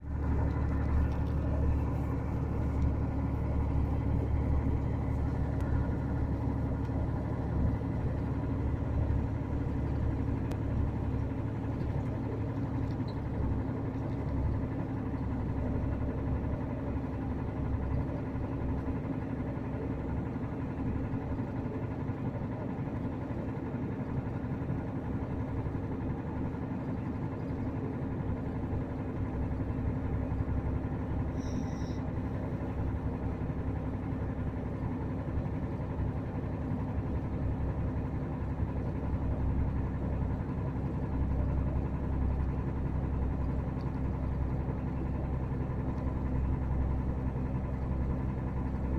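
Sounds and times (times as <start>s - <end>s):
diesel engine running with knocking: 0.0s - 48.9s.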